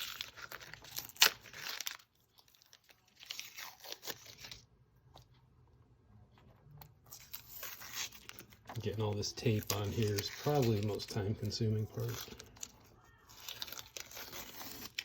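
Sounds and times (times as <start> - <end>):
tape ripping off a sneaker: 13.4 - 15.0.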